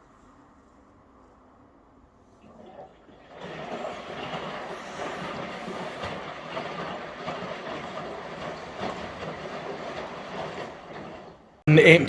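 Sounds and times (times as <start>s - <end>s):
washing machine drum churning: 2.4s - 11.8s.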